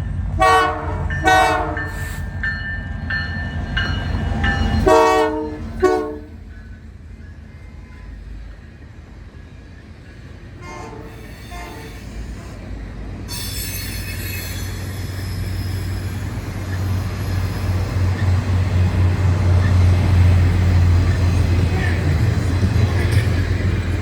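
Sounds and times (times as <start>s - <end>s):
faint train horn: 0.4s - 2.2s, 4.8s - 6.4s, 10.6s - 12.6s, 21.6s - 22.3s
train wheels squealing on rails: 1.8s - 24.0s.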